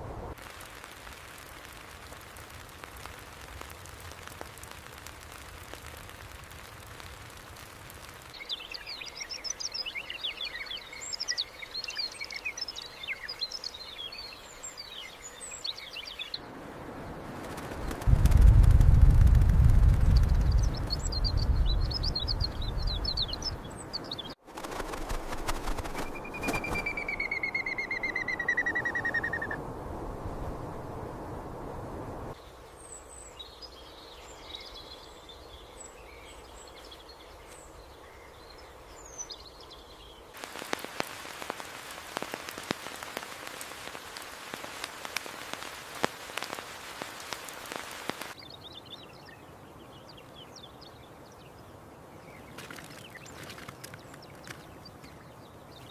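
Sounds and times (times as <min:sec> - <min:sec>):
dense crackling noise: 0:00.0 - 0:12.0, 0:16.2 - 0:23.2, 0:24.4 - 0:32.4, 0:40.3 - 0:48.4
small birds chirping: 0:01.5 - 0:18.2, 0:19.4 - 0:24.4, 0:25.7 - 0:29.6, 0:32.3 - 0:55.9
falling bird trill: 0:25.9 - 0:29.6.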